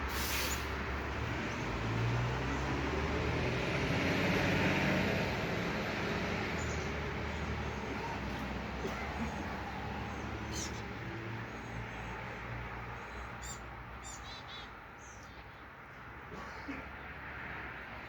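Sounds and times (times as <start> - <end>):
vehicle passing: 0.0 - 14.0
traffic hum: 0.0 - 18.0.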